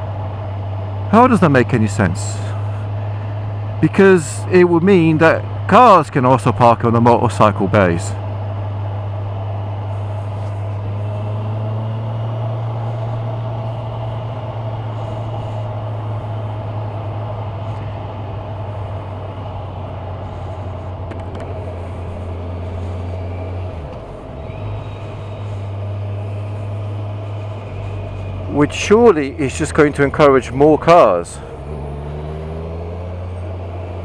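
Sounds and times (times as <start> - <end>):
motorcycle engine running: 8.1 - 34.0.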